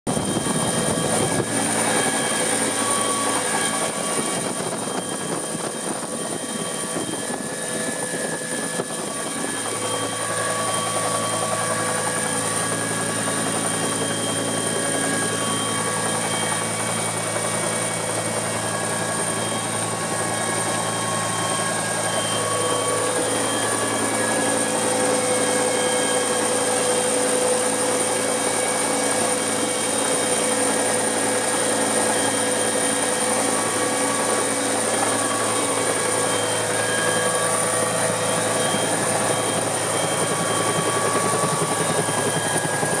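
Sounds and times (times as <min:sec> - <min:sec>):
helicopter engine and rotor drone: 0:00.1 - 0:43.0
high-pitched turbine whine: 0:00.1 - 0:43.0.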